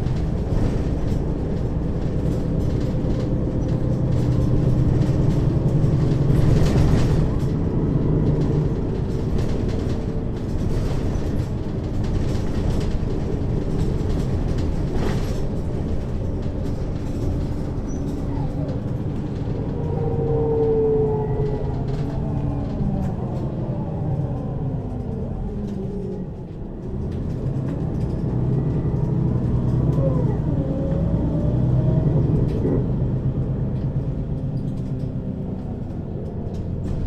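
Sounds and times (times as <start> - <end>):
bus diesel engine droning: 0.0 - 37.0.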